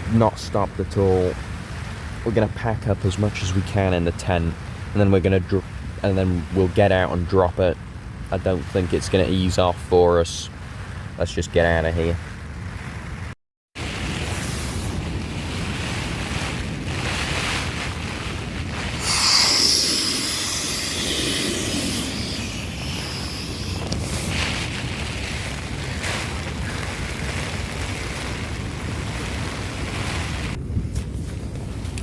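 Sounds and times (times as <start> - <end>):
wind rumbling on microphone: 0.0 - 32.0
rain on a tent: 13.8 - 32.0.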